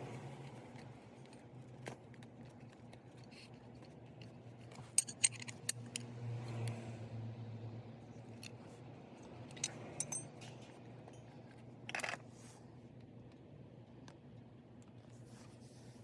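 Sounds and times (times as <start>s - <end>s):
metallic clinks of tools: 9.5s - 11.2s.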